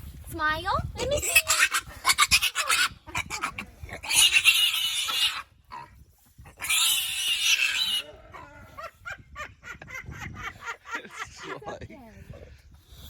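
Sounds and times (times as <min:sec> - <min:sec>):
pig squealing: 0:01.2 - 0:05.9, 0:06.5 - 0:08.9.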